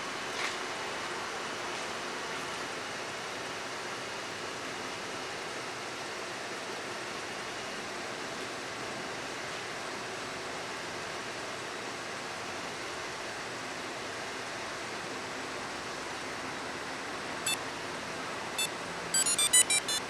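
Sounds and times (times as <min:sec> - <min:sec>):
remote control beeps: 0:18.6 - 0:20.0.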